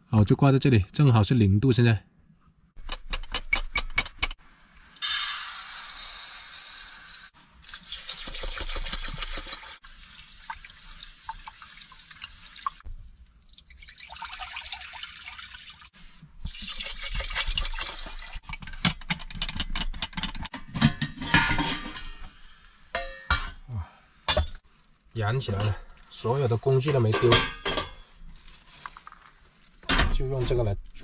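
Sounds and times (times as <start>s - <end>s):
water pouring and splashing: 7.5s - 18.4s
clinks and knocks: 18.4s - 23.6s, 26.8s - 28.1s.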